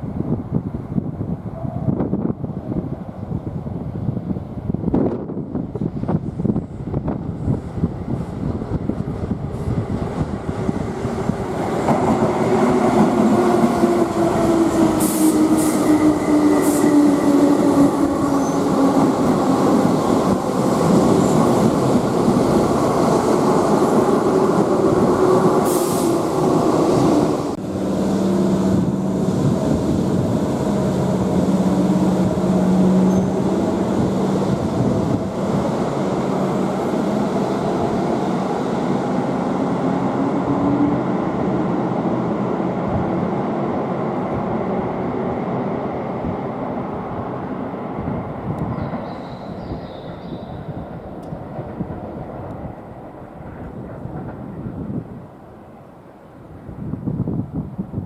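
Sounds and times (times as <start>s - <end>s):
train wheel squeals: 18.3s - 18.8s, 33.0s - 33.5s, 48.7s - 50.9s.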